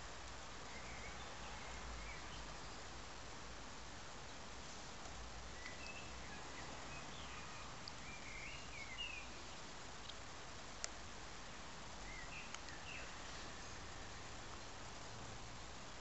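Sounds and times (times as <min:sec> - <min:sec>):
steady background hiss: 0:00.0 - 0:16.0
small bird chirps: 0:05.5 - 0:10.2, 0:12.0 - 0:14.8.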